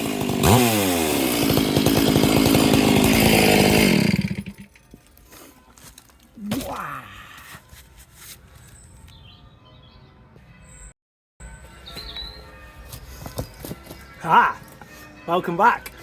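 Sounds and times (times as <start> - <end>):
chainsaw running at high revs: 0.0 - 4.7
chainsaw short rev: 0.0 - 4.7.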